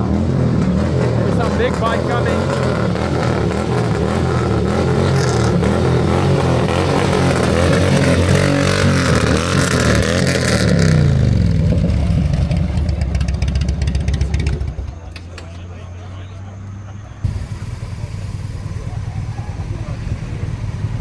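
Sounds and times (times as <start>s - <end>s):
motorcycle engine passing: 0.0s - 21.0s.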